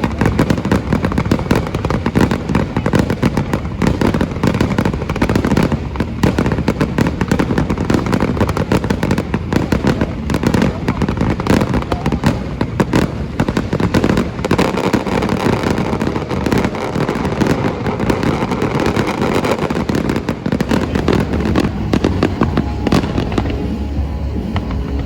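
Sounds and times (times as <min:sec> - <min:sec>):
fireworks bangs and crackles: 0:00.0 - 0:25.0
deep rumble: 0:20.6 - 0:25.0.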